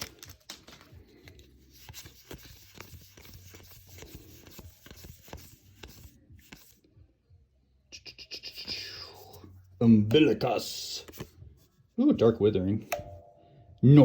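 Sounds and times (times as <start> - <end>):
cards being flipped by hand: 0.0 - 6.8, 10.1 - 11.4.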